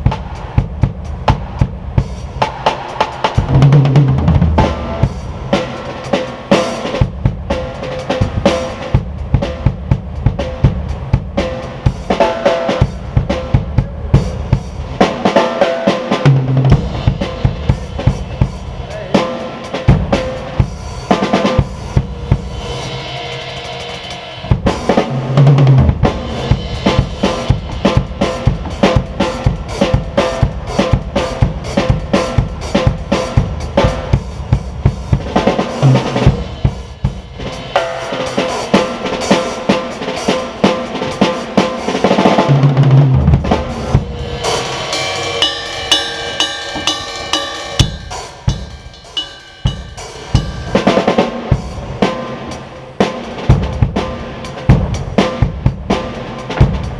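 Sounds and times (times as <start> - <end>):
drum kit playing: 0.0 - 56.9
ringing cymbal wash: 16.9 - 24.9, 43.7 - 52.8.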